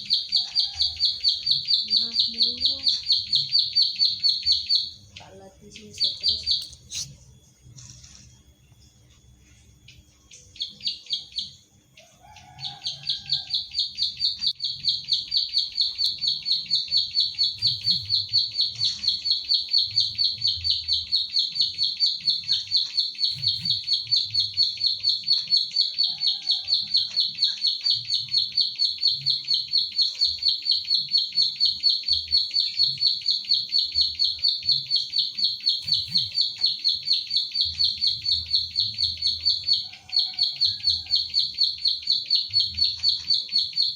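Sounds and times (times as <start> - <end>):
bird rapid clicking song: 0.0 - 8.3, 9.9 - 11.6, 13.2 - 43.9.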